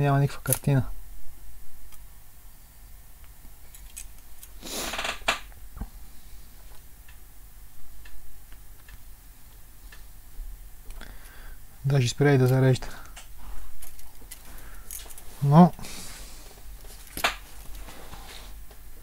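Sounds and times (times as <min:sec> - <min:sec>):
short hiss: 0:04.6 - 0:05.2.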